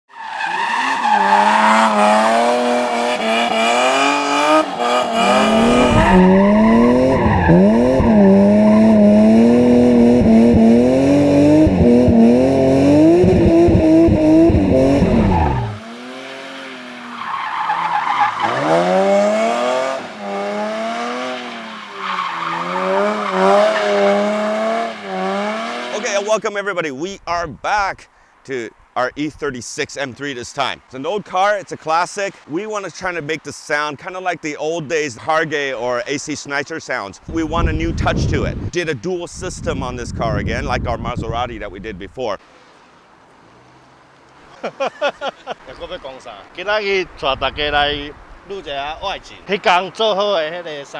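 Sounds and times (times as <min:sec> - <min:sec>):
car engine revving hard: 0:00.8 - 0:26.0.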